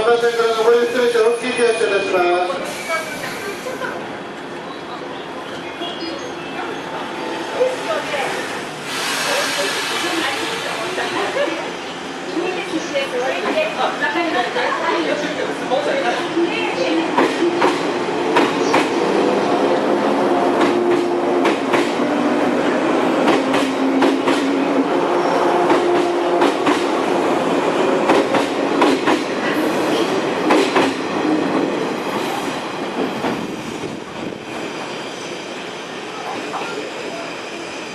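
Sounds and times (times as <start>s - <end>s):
train running hum: 2.5s - 37.9s
train wheels clacking: 28.0s - 29.3s, 30.4s - 31.0s.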